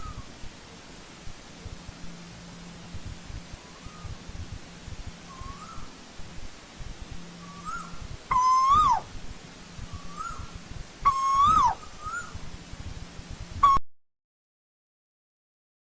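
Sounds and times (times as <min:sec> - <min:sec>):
koel calling: 0:07.4 - 0:09.1, 0:10.0 - 0:12.4.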